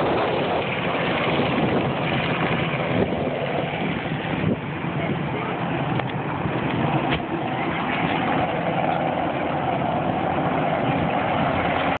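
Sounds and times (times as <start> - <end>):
helicopter engine and rotor: 0.0 - 12.0.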